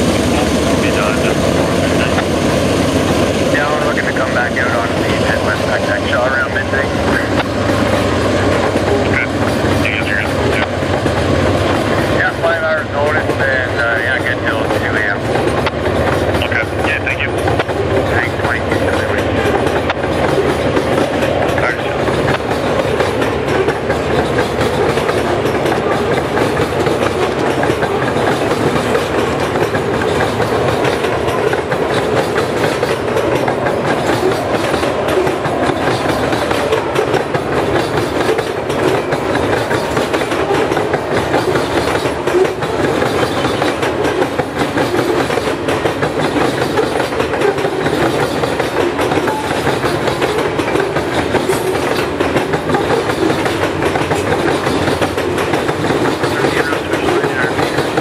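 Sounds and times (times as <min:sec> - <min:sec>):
freight car wheels clicking on rails: 0:13.1 - 0:58.0.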